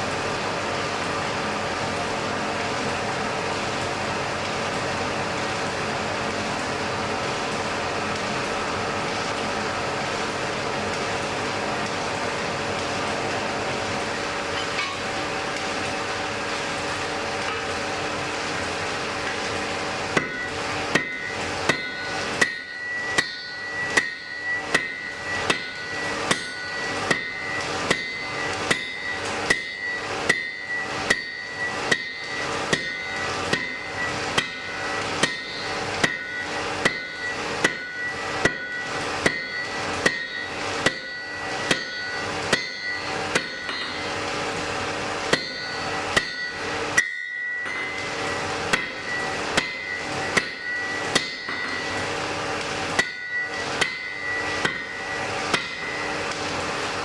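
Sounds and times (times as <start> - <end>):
hammer striking anvil: 20.2 - 44.2, 45.3 - 52.0, 53.0 - 56.2.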